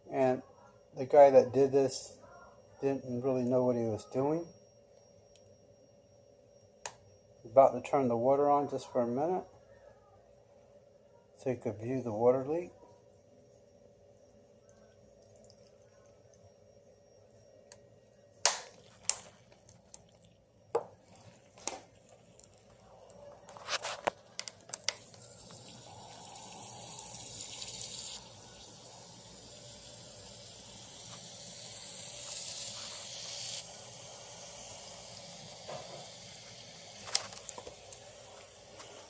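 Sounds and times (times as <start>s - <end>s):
water rushing from leaking pipe: 24.4s - 39.0s.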